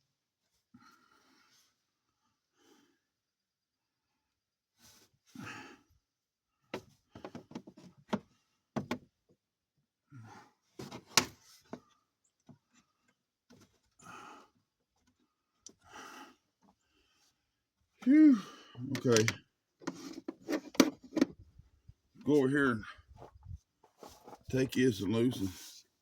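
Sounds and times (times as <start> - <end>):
man breathing hard and sighing: 5.3 - 5.9, 10.1 - 10.6, 14.0 - 14.7, 15.7 - 17.3, 18.0 - 18.9
clicks and knocks of parts: 18.9 - 21.3.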